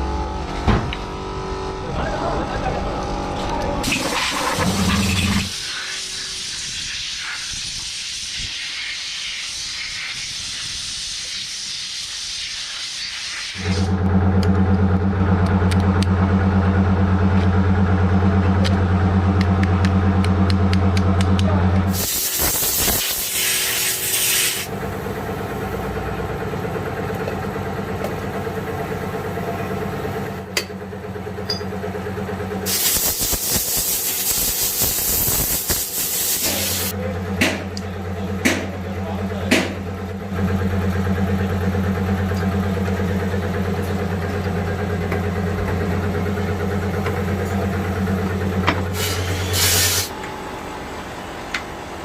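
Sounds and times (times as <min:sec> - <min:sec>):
engine low hum: 0:00.0 - 0:05.6, 0:13.6 - 0:22.1, 0:24.6 - 0:52.0
hissing bursts: 0:21.9 - 0:24.7, 0:32.6 - 0:36.9, 0:48.9 - 0:50.1.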